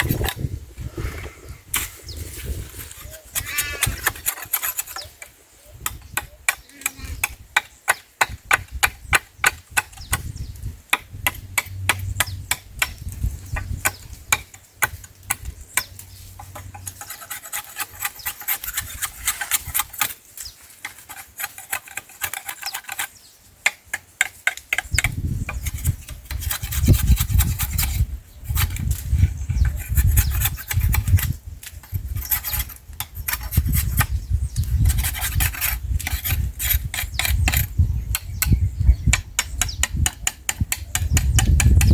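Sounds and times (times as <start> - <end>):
hand tool rasping on wood: 2.7 - 5.2, 15.8 - 20.2, 20.8 - 23.1, 24.2 - 37.8.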